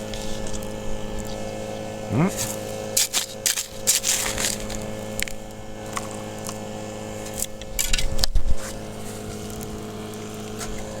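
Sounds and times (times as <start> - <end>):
steady low hum: 0.0 - 2.9
gravel and rocks crunching: 2.3 - 6.6.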